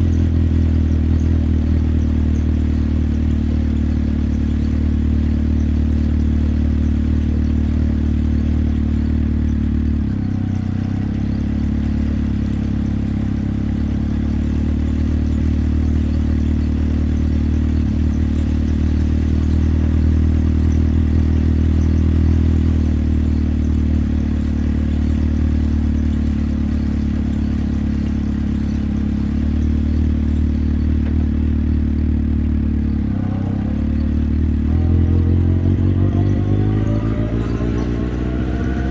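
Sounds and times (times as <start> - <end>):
motorcycle engine running: 0.0 - 38.9
road noise: 0.0 - 38.9.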